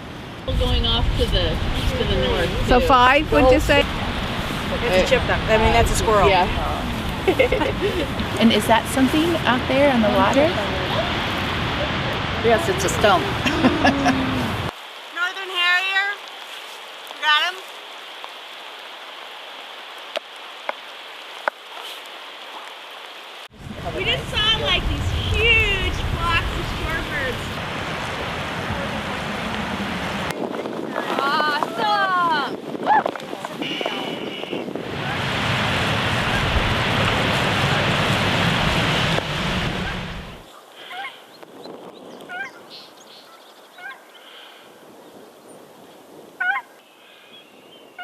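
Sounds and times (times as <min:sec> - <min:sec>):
wind gusting over microphone: 0:00.0 - 0:14.7, 0:23.5 - 0:46.6
steady rain falling: 0:00.0 - 0:48.0
sharp raindrop hits: 0:23.0 - 0:31.9, 0:32.6 - 0:40.4.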